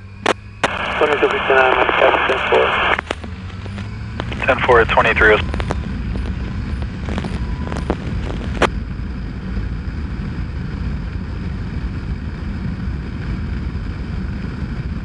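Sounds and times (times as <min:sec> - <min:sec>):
sharp clicks: 0:00.2 - 0:08.7
motorcycle engine rumble: 0:03.0 - 0:11.4.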